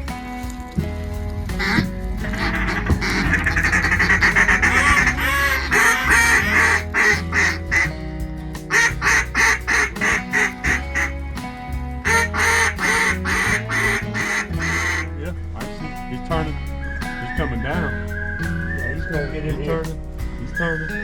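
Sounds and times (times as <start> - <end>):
background music with bass line: 0.0 - 21.0
duck call quacks: 1.6 - 7.9, 8.7 - 11.1, 12.1 - 15.1.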